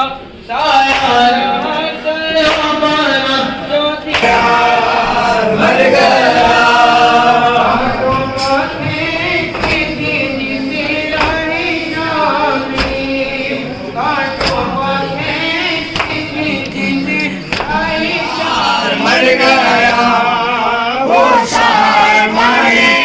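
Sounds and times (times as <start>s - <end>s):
group of voices chanting: 0.0s - 23.0s
sharp slaps: 0.6s - 1.4s, 2.4s - 3.2s, 4.1s - 4.8s, 9.5s - 11.8s, 12.7s - 13.2s, 14.3s - 16.8s, 17.5s - 18.0s.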